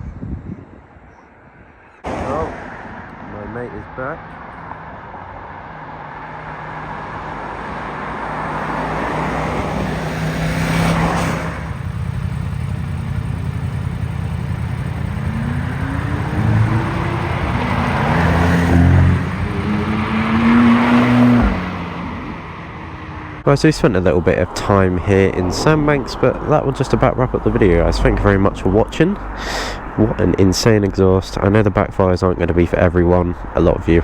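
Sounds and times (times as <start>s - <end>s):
road and wind noise: 0.0s - 34.0s
motorcycle engine accelerating: 8.3s - 23.4s.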